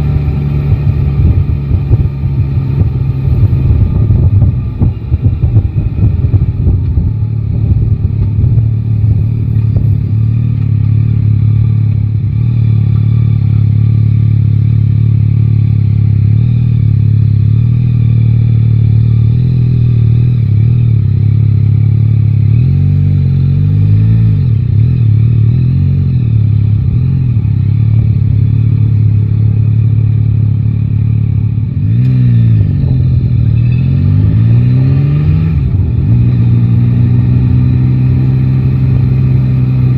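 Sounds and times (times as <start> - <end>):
wind noise: 0.0 - 10.2
motorcycle engine running: 0.0 - 39.9.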